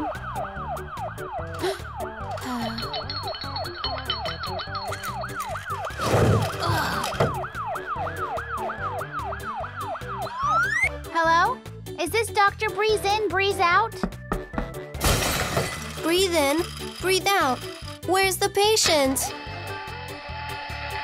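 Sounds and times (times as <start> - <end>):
cartoon ambulance siren wailing: 0.0 - 2.8, 4.5 - 10.9
background music: 0.0 - 21.0.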